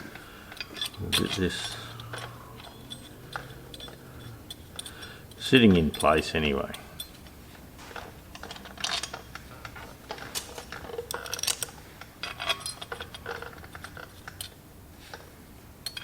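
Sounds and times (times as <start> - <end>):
metallic clinks and taps: 0.5 - 11.7.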